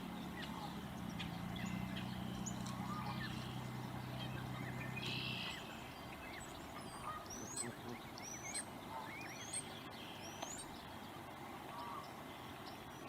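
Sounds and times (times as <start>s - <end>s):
steady low hum: 0.0s - 13.0s
bird trills: 0.2s - 10.9s
high bird chirps: 4.2s - 8.6s.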